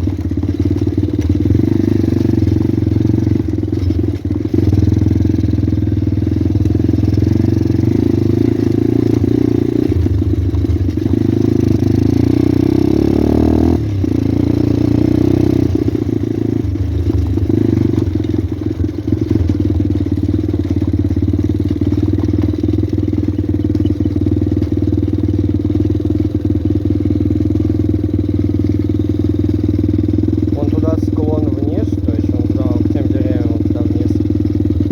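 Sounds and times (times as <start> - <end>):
pit bike engine revving: 0.0 - 34.9.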